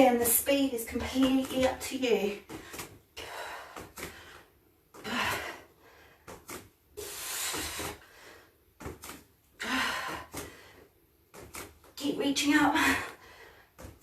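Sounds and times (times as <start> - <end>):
woman breathing heavily: 2.4 - 11.5, 12.6 - 14.0.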